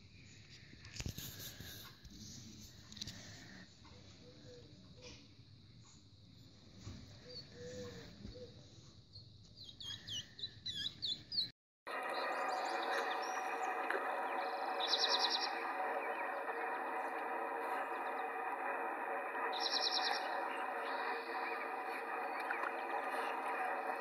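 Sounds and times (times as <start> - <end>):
chorus of bird calls: 11.9 - 24.0
fast bird trill: 11.9 - 24.0.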